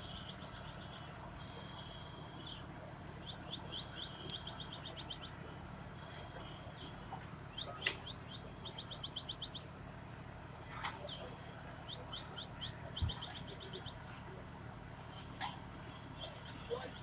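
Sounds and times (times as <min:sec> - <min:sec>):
small bird chirping: 0:00.0 - 0:05.4, 0:06.0 - 0:09.7, 0:10.8 - 0:14.2
steady low hum: 0:00.0 - 0:17.0.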